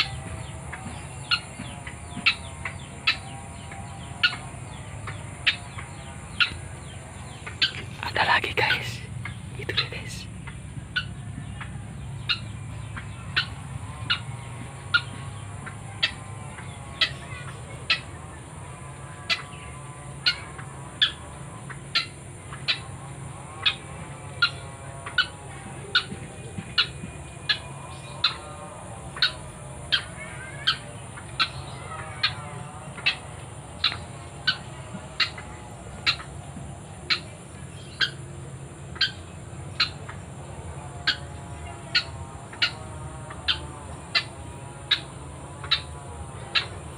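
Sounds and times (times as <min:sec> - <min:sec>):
high insect hiss: 0:12.0 - 0:46.9.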